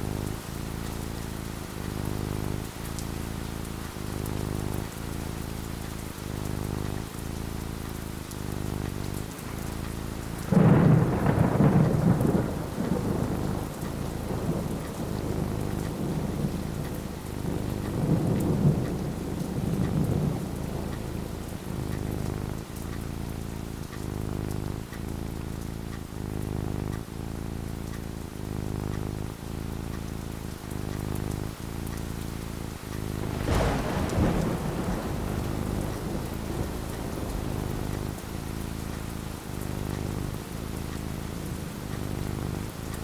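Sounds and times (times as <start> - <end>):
steady rain: 0.0 - 43.0
thunderclap and rumbling: 8.7 - 25.0, 32.7 - 43.0.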